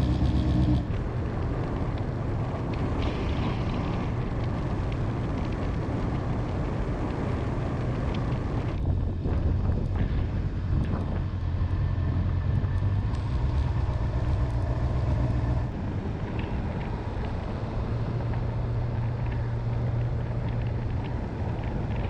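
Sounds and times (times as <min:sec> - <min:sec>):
motorcycle engine hum: 0:00.0 - 0:22.0
road noise: 0:00.0 - 0:22.0
wind rushing over microphone: 0:00.0 - 0:22.0.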